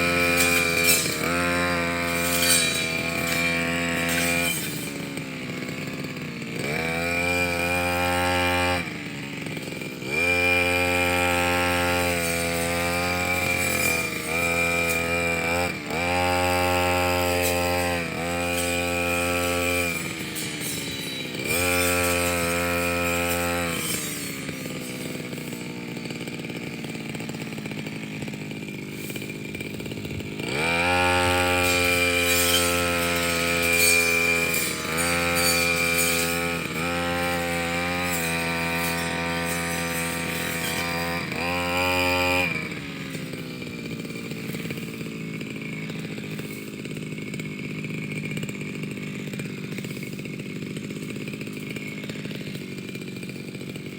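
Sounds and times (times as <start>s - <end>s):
brush cutter engine revving: 0.0s - 53.9s.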